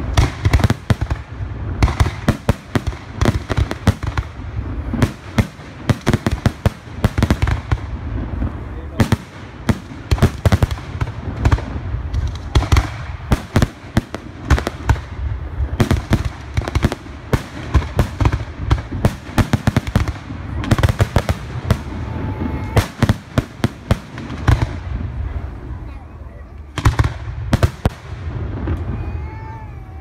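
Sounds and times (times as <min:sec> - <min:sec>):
fireworks bangs and crackles: 0:00.0 - 0:30.0
firework whistling: 0:19.0 - 0:23.8.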